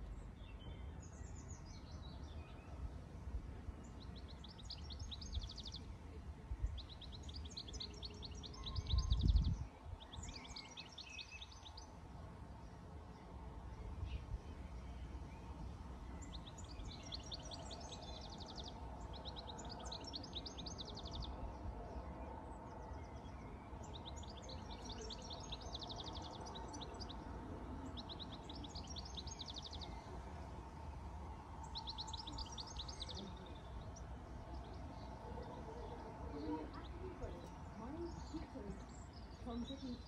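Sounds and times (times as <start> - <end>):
low outdoor background noise: 0.0 - 40.0.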